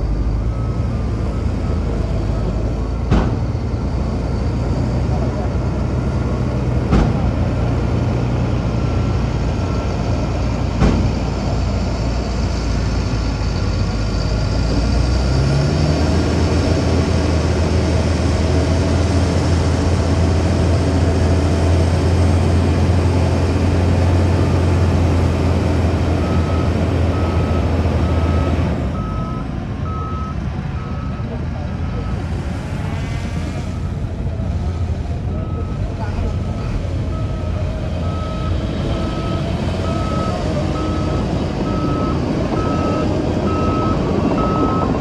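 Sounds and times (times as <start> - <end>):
heavy diesel machinery running: 0.0 - 45.0
reversing alarm beeping: 0.1 - 7.6, 8.7 - 11.8, 26.0 - 32.4, 33.6 - 45.0
sharp knock: 10.8 - 11.2.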